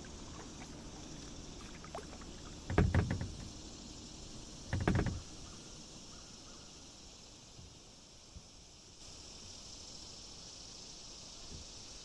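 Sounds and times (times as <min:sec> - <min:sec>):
kayak paddle strokes in water: 0:00.0 - 0:03.6.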